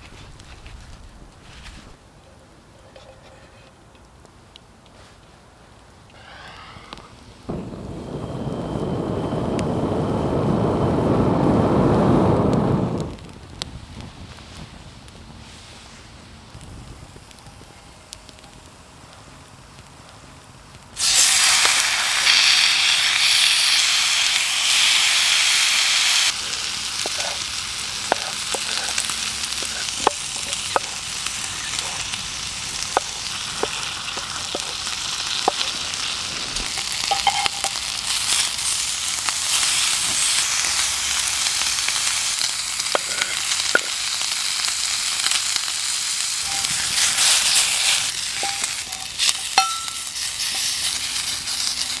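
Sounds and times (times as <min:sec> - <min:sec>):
pops: 0:21.0 - 0:44.0
food sizzling in a hot pan: 0:21.0 - 0:52.0.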